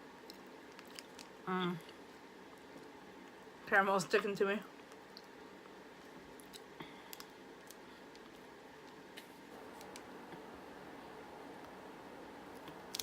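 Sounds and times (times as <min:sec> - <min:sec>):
low room noise: 0:00.0 - 0:13.0
chewing sticky candy bar: 0:00.1 - 0:03.5, 0:04.7 - 0:10.1, 0:12.5 - 0:13.0.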